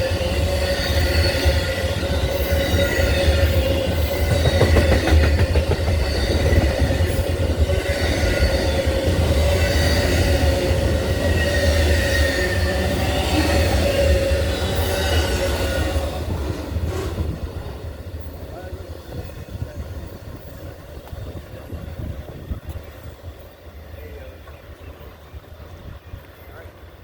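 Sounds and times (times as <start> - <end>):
train cars rumbling past: 0.0 - 27.0
wheel clatter on rails: 3.9 - 7.8.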